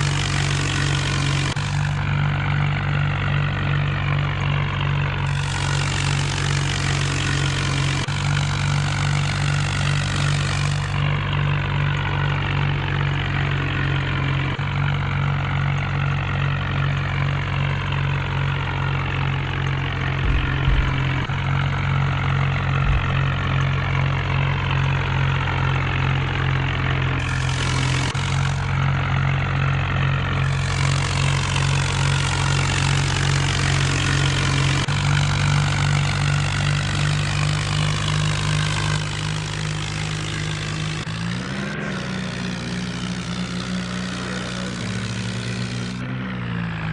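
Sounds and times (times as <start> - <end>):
tractor diesel engine running: 0.0 - 46.9
low knocks: 20.2 - 21.5, 22.8 - 23.6.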